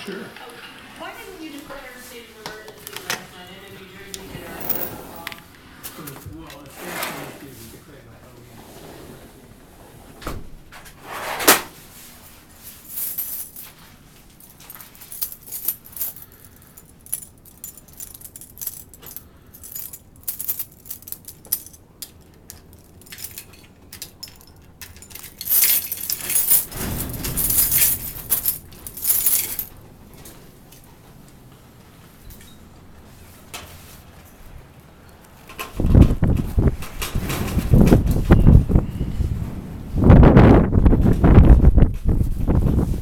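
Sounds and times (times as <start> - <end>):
rustling: 1.0 - 10.2, 10.8 - 34.7.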